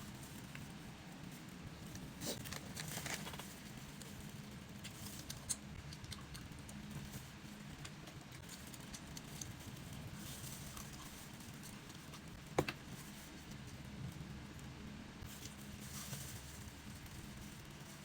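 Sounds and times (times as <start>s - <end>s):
person chewing noodles: 4.8s - 7.0s.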